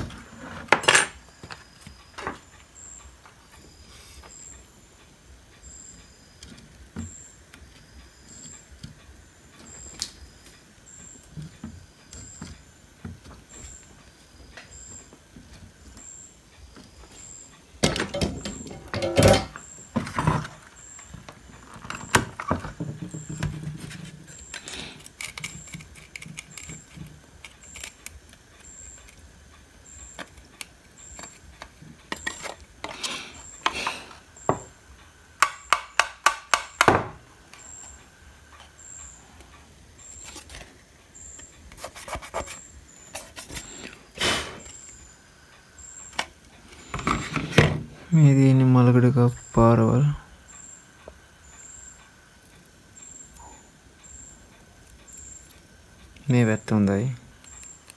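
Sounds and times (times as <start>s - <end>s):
hand tools clicking and scraping: 17.8s - 29.3s, 30.0s - 34.7s, 40.1s - 44.9s.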